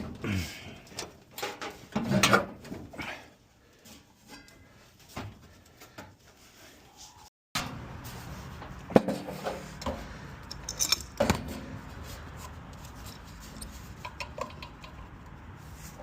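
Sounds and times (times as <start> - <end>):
metal tools clinking and rattling: 9.2 - 11.7, 12.4 - 15.2.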